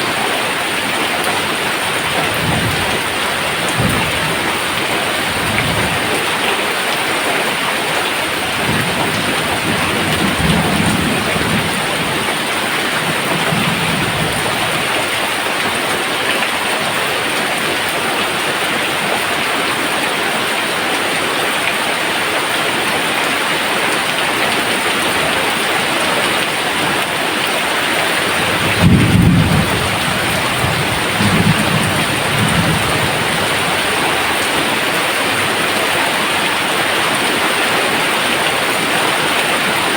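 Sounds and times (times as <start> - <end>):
rain pouring: 0.0 - 39.9
low rolls of thunder: 1.8 - 6.8, 8.2 - 15.2, 28.0 - 34.8.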